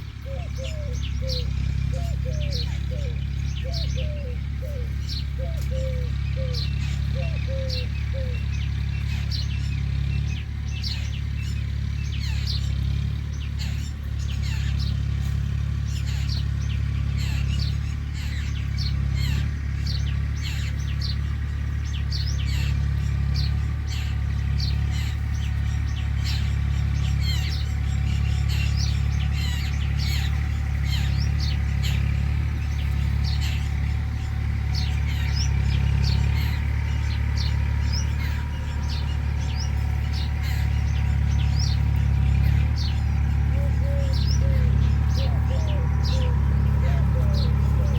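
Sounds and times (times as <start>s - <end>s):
dove cooing: 0.0s - 11.6s, 22.4s - 47.9s
small birds chirping: 0.0s - 47.9s.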